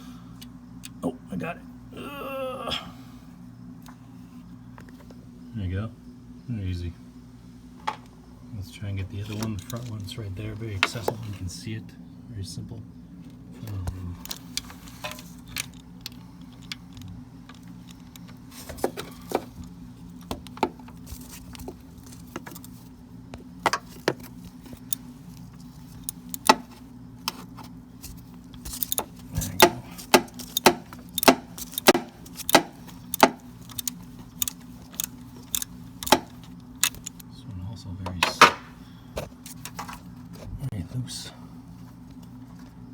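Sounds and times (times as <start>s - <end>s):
low steady hum: 0.0s - 42.9s
ratchet clicking: 23.8s - 26.8s, 28.2s - 37.2s.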